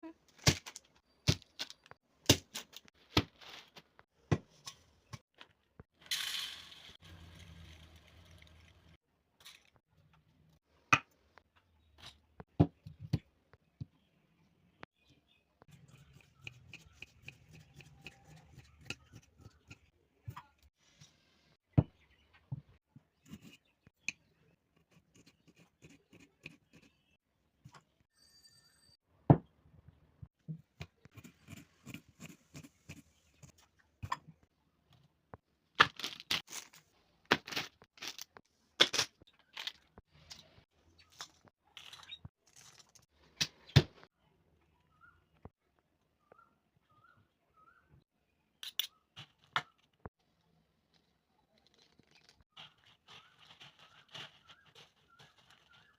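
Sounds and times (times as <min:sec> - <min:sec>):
dry food and utensils clattering: 0:50.9 - 0:55.9.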